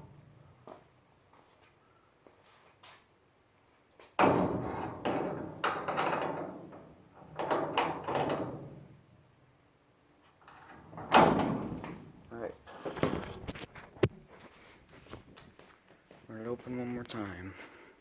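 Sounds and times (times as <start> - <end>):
garage door clanks and knocks: 4.2 - 9.0, 10.5 - 12.3.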